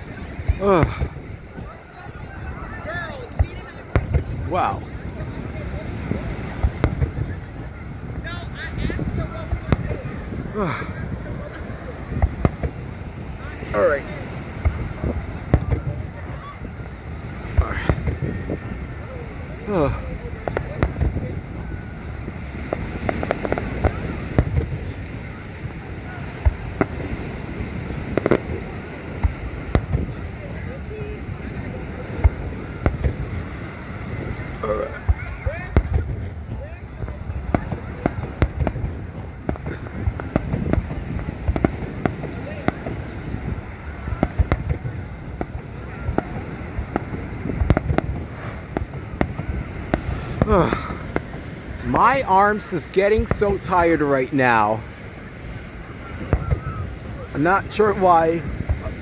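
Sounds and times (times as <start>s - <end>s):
fireworks popping and banging: 0.0s - 59.0s
surf: 0.0s - 59.0s
wind: 0.0s - 59.0s.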